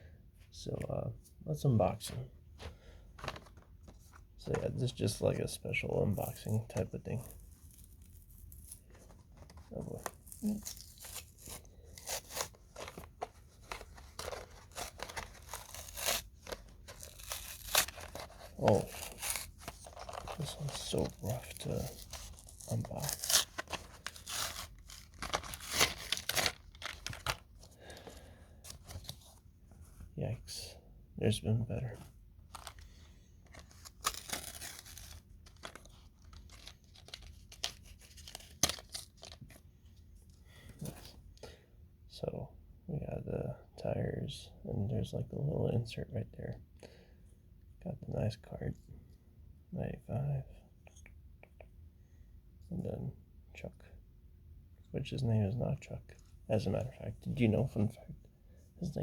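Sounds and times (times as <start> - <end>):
packaging tearing and crackling: 9.8 - 27.6, 33.5 - 39.4.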